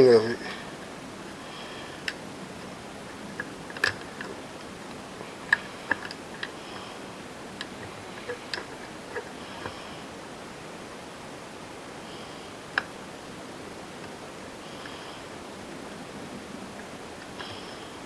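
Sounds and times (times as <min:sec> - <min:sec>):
plastic parts clicking: 0:03.4 - 0:04.4, 0:05.5 - 0:06.6.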